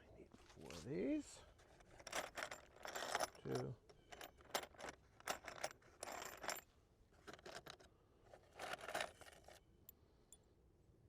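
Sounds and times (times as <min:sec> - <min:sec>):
small metal parts clinking: 0:01.8 - 0:06.6, 0:07.2 - 0:09.6.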